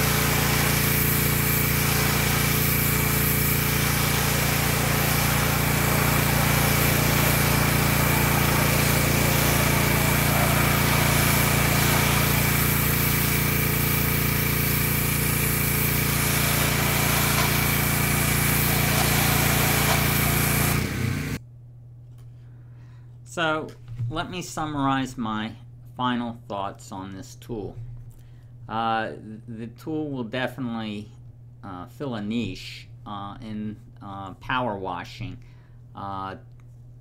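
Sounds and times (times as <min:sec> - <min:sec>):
pressure washer engine drone: 0:00.0 - 0:21.4
water spray hiss: 0:00.0 - 0:21.4.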